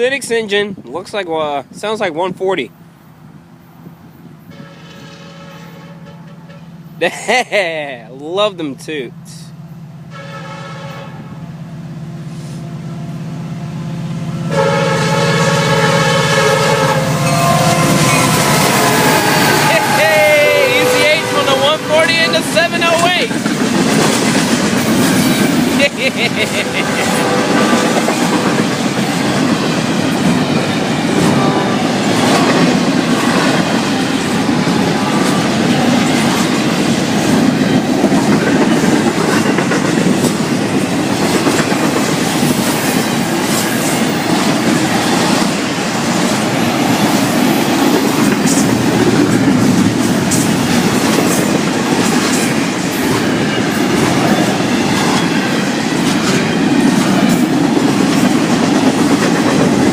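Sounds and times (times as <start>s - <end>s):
freight train rumble: 0.0s - 59.9s
wheels clicking over rail joints: 22.8s - 25.9s, 27.5s - 59.9s.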